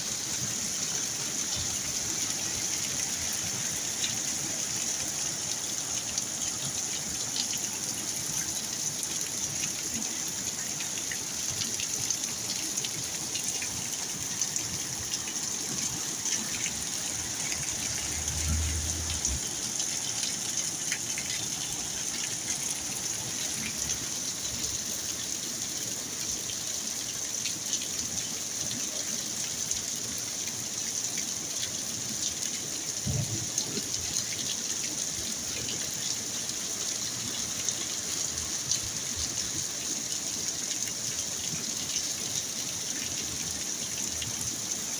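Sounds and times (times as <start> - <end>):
water gushing and running: 0.0 - 44.9
storm rain falling: 15.7 - 22.4, 33.0 - 34.2.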